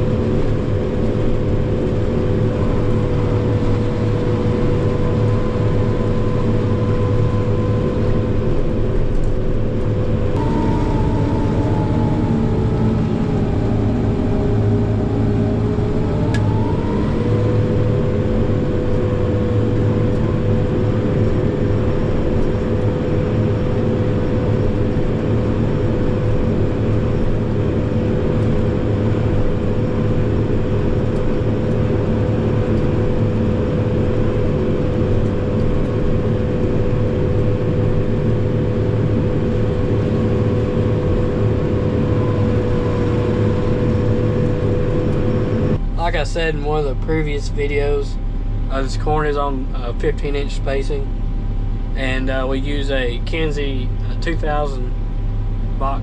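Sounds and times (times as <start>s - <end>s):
forage chopper whine: 0.0s - 56.0s
tractor engine drone: 0.0s - 56.0s.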